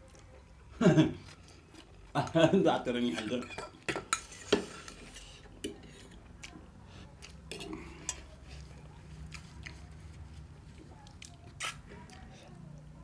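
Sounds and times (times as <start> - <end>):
soft chewing: 0.0 - 2.4, 3.8 - 13.0
cutlery clinking against plate: 3.0 - 6.1.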